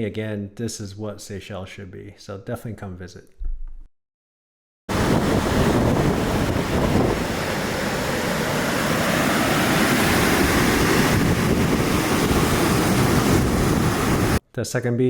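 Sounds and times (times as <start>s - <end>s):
ocean surf on beach: 4.9s - 14.4s
wind on microphone: 4.9s - 14.4s.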